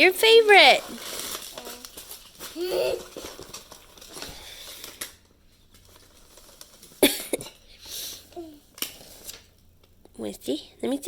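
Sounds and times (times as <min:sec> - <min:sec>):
package rustling: 0:00.3 - 0:07.7.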